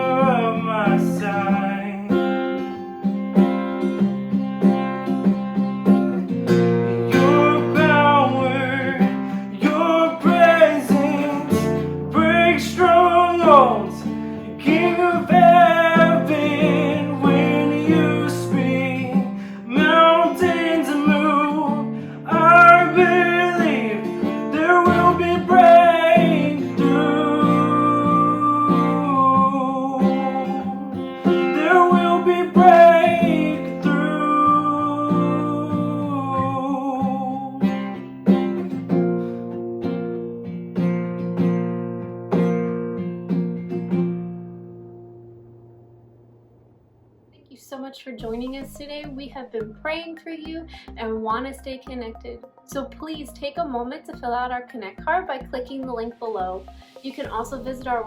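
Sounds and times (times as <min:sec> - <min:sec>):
person singing: 0:00.0 - 0:02.6, 0:07.1 - 0:38.4
strummed acoustic guitar: 0:00.0 - 0:46.7
bass notes: 0:24.6 - 0:30.9, 0:48.2 - 0:58.0.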